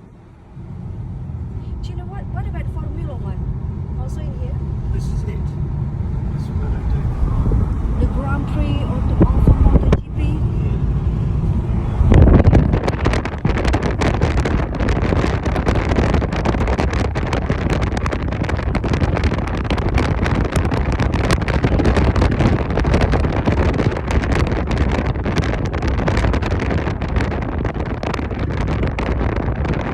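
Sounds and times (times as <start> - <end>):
wind buffeting microphone: 0.0 - 29.9.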